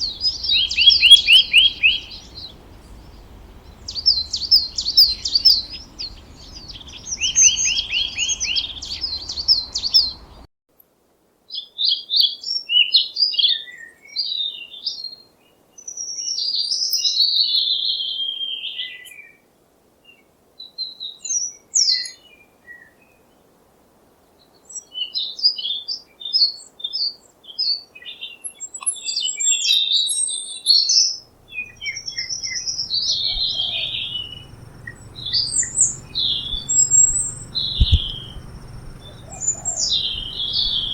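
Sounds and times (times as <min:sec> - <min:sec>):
low background rumble: 0:00.0 - 0:10.4, 0:31.3 - 0:40.9
rapid repeated bird trill: 0:00.0 - 0:10.4, 0:31.3 - 0:40.9
songbirds chirping and warbling: 0:00.0 - 0:10.4, 0:31.2 - 0:40.9.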